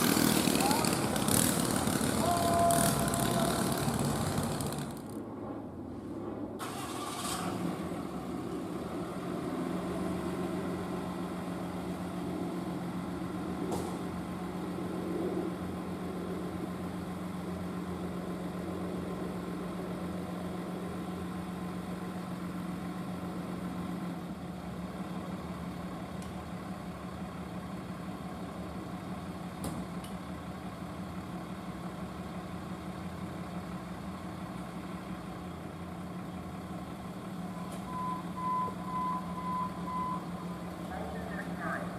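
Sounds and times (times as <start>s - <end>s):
truck engine idling: 0.0s - 5.2s, 16.2s - 41.9s.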